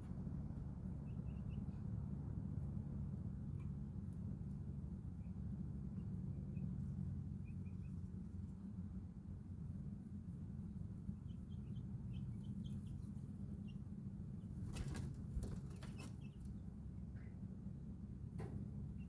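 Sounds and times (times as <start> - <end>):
steady low hum: 0.0 - 19.0
chicks peeping: 0.9 - 1.9, 4.9 - 8.5, 10.2 - 16.7
wings flapping: 14.5 - 16.5.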